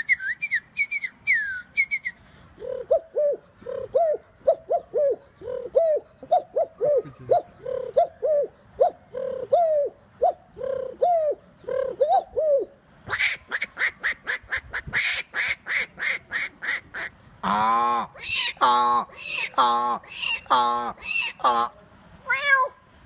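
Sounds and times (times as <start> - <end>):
man imitating bird calls: 2.6 - 16.2, 17.4 - 21.8.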